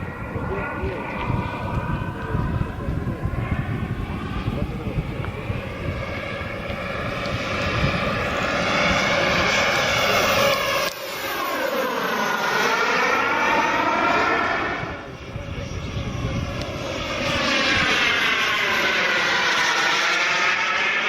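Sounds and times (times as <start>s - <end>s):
wind rumble on microphone: 0.0s - 11.3s, 13.7s - 18.8s
plane flying over: 0.0s - 21.0s.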